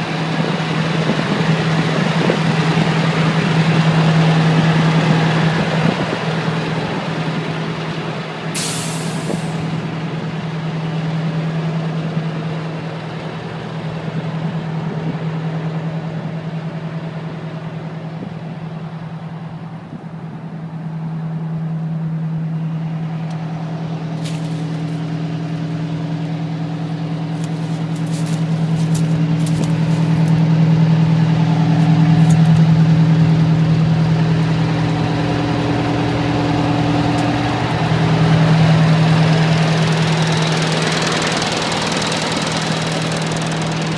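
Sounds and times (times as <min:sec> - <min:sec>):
diesel engine running: 0:00.0 - 0:43.9
air hiss: 0:08.6 - 0:09.7.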